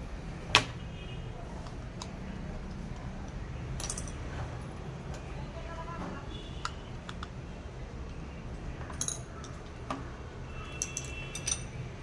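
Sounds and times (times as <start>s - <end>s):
light metallic clinks and taps: 3.2s - 4.2s, 10.7s - 11.8s.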